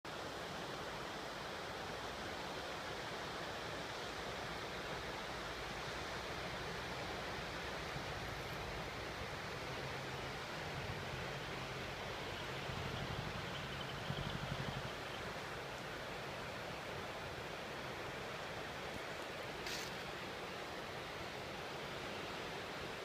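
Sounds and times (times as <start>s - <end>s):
river water rushing: 0.1s - 23.0s
faint low hum: 9.9s - 15.5s.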